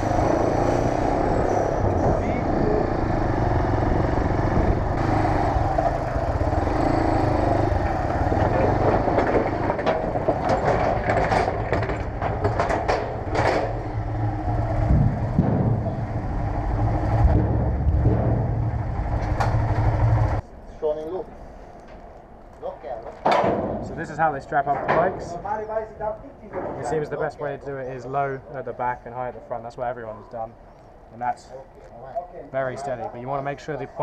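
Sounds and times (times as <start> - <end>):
motorcycle engine at low revs: 2.3 - 20.4
sharp clicks and knocks: 7.8 - 14.0, 17.2 - 20.4.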